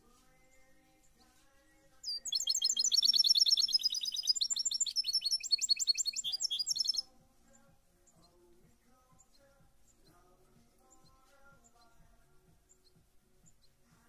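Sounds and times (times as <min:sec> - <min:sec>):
bird chirping rapidly: 0:02.0 - 0:08.4.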